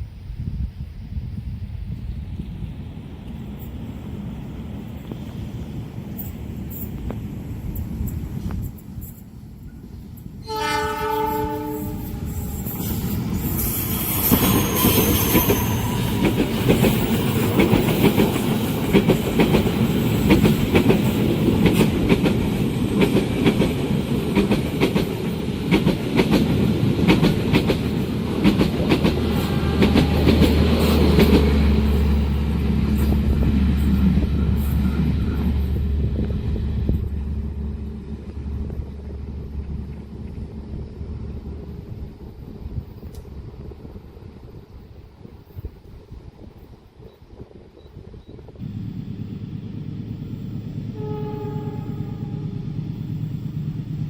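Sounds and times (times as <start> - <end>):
train horn: 10.4 - 13.1, 14.2 - 16.5, 29.2 - 32.4, 50.8 - 52.8
train wheels clacking over rail joints: 12.0 - 37.2
steady low hum: 48.6 - 54.0.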